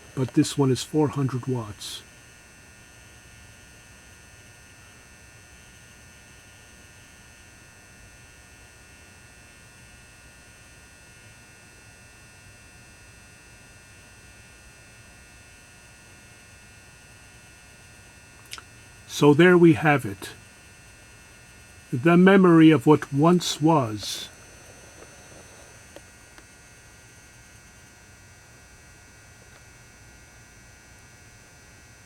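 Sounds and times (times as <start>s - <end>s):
lamp electrical hum: 0.0s - 32.0s
thin high whine: 18.5s - 20.4s, 21.5s - 26.4s.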